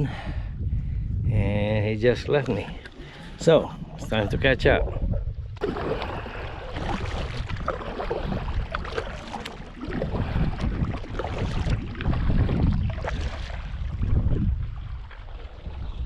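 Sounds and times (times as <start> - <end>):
wind rumbling on microphone: 0.0 - 16.0
paddle splashing in water: 5.6 - 16.0.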